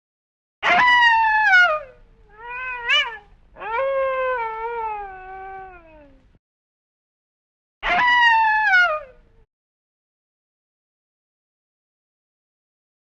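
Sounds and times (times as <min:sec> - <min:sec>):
wolf howling: 0:00.6 - 0:06.2, 0:07.8 - 0:09.2.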